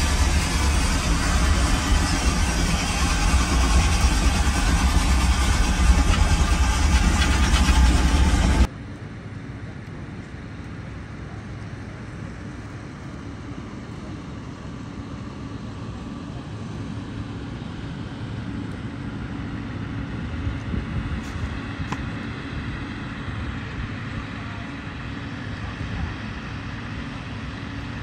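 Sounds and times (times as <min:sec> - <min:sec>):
train rumbling: 0:00.0 - 0:08.7
outdoor background noise: 0:00.0 - 0:28.0.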